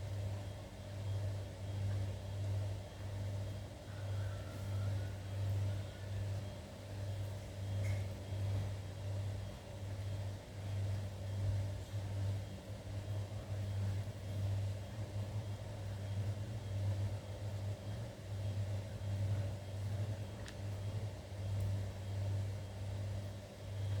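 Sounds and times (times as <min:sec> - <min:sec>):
low mechanical hum: 0:00.0 - 0:24.0
faint tick: 0:20.4 - 0:20.7.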